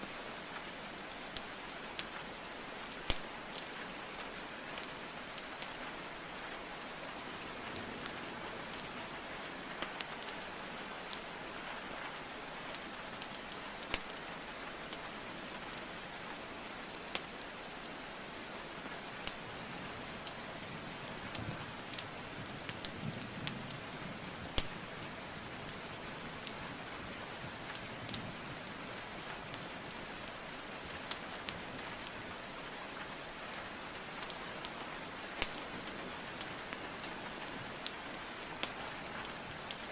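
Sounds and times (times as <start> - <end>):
steady rainfall: 0.0 - 39.9
wood fire crackling: 0.5 - 5.8, 12.2 - 39.9
sharp pops of burning logs: 3.0 - 3.3, 13.8 - 14.3, 24.5 - 24.8, 35.4 - 35.7.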